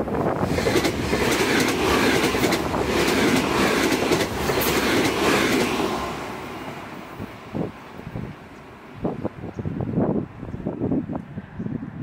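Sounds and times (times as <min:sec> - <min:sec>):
electric train passing: 0:00.0 - 0:11.0
wheels clacking over rail joints: 0:00.4 - 0:06.5.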